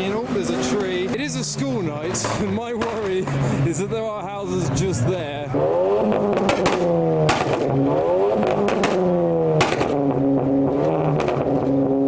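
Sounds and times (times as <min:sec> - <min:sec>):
car engine revving hard: 0:04.4 - 0:12.0
sharp exhaust cracks: 0:05.2 - 0:12.0.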